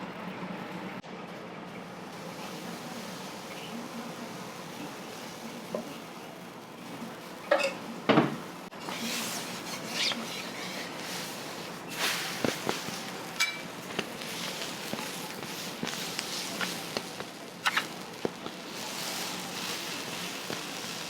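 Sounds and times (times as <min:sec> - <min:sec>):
metal utensils and dishes clinking: 0:07.4 - 0:07.9, 0:11.9 - 0:17.0.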